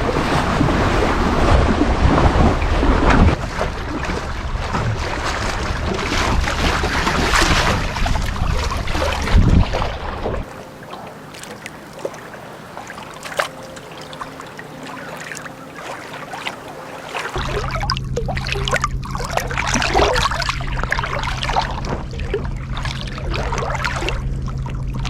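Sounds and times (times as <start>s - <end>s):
wind buffeting microphone: 0.0s - 10.5s
small knocks and splashes: 0.0s - 25.0s
water lapping: 0.0s - 25.0s.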